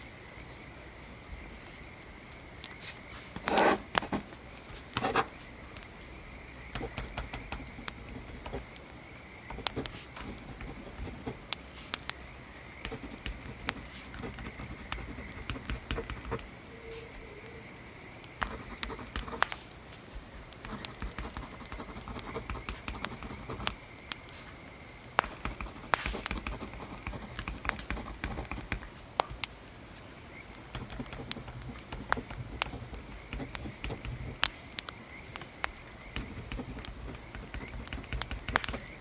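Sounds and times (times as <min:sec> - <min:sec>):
writing strokes on paper: 0:02.8 - 0:05.5, 0:06.8 - 0:08.8, 0:09.5 - 0:12.1, 0:12.8 - 0:17.4, 0:18.4 - 0:24.6, 0:25.2 - 0:29.0, 0:30.6 - 0:34.7, 0:36.1 - 0:39.0
wood fire crackling: 0:05.6 - 0:39.0.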